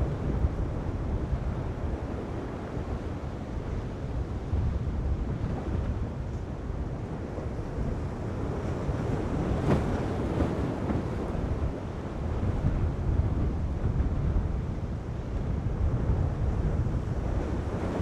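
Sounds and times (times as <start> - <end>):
heavy surf: 0.0 - 18.0
wind buffeting microphone: 0.0 - 18.0.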